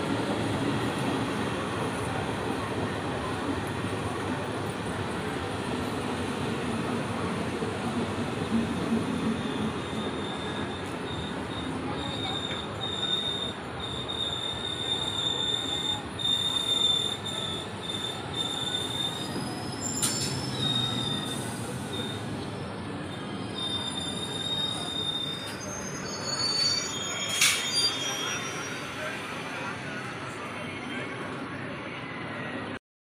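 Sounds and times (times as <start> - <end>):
train carriages rumbling: 0.0 - 30.0
high wheel squeal: 9.4 - 22.4, 23.1 - 30.0.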